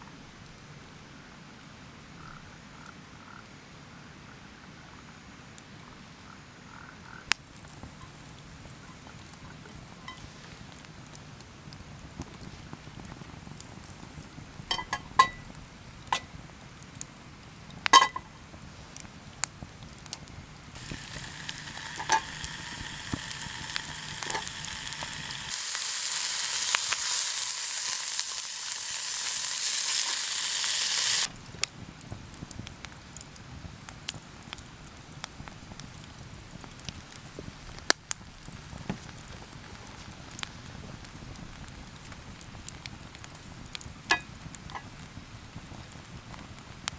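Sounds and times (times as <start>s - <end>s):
food sizzling in a pan: 7.6s - 10.7s, 20.7s - 31.4s.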